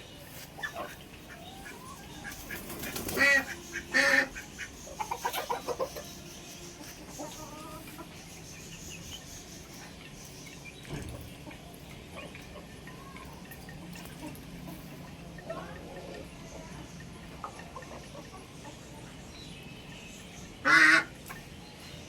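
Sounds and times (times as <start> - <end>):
poultry clucking: 0.0 - 21.6
poultry harsh calls: 0.6 - 8.3, 20.6 - 21.2.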